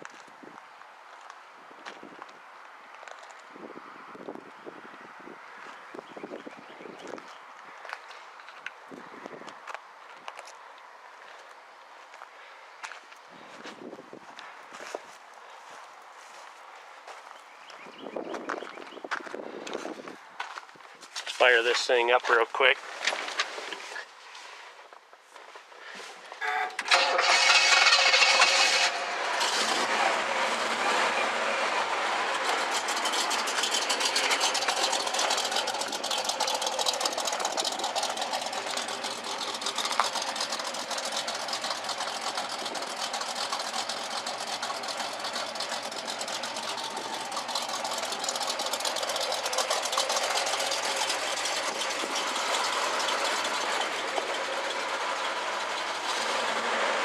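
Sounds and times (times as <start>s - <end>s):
car engine starting and idling: 26.4s - 57.0s.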